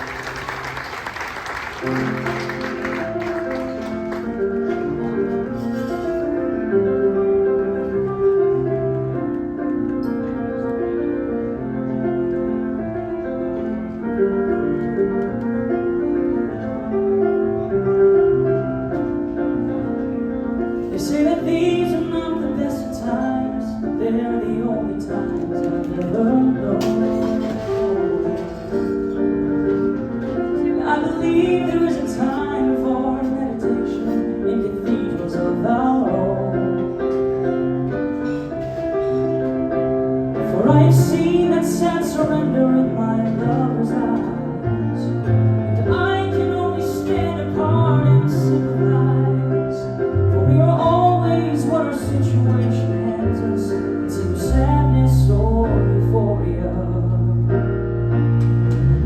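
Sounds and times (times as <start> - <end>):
keyboard chords: 0.0 - 59.0
person singing: 30.6 - 37.3, 40.4 - 57.5.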